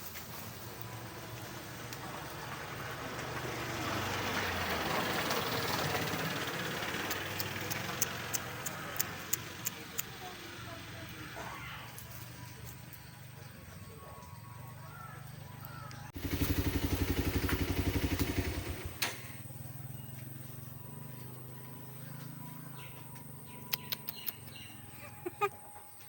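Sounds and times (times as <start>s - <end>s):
low engine hum: 0.3s - 11.4s
motor engine with rapid pulse: 3.2s - 10.0s, 16.2s - 19.3s.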